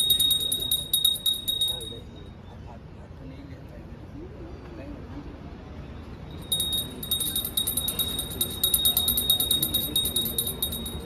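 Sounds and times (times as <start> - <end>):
small metal bell ringing rapidly: 0.0 - 2.3, 6.3 - 11.0
low background murmur: 0.0 - 11.0.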